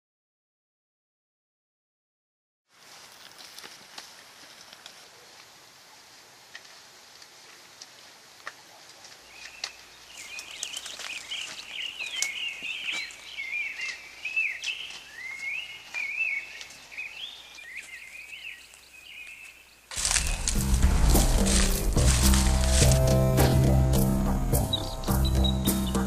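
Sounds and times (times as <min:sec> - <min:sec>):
rustling through undergrowth: 0:02.7 - 0:26.0
birds chirping and twittering: 0:09.2 - 0:26.0.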